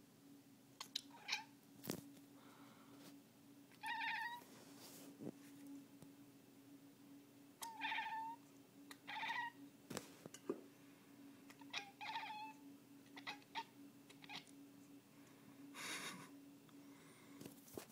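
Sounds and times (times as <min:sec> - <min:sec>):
cat chirping calls: 0:03.8 - 0:04.4, 0:07.6 - 0:09.6, 0:11.5 - 0:14.5.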